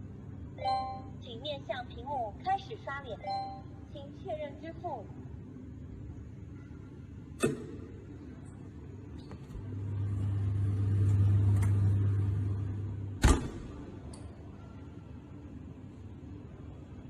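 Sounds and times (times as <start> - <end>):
electric motor hum: 9.6 - 13.2
machine clunk: 13.2 - 14.0.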